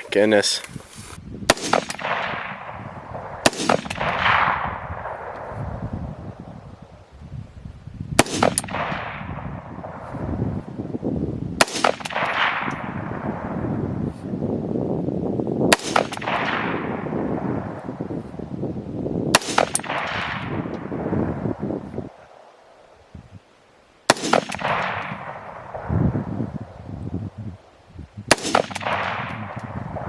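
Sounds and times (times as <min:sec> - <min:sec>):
rifle shots with echo: 0:01.5 - 0:06.4, 0:08.2 - 0:10.7, 0:11.6 - 0:13.7, 0:15.7 - 0:18.1, 0:19.3 - 0:21.5, 0:24.1 - 0:26.8, 0:28.3 - 0:30.0.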